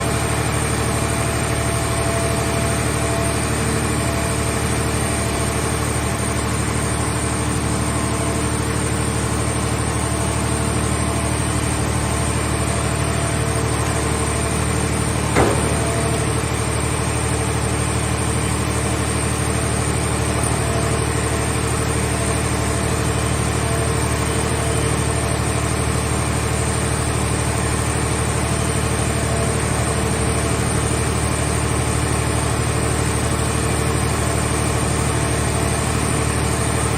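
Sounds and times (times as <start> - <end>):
baler engine idling: 0.0 - 36.9
sharp knock: 15.3 - 16.4.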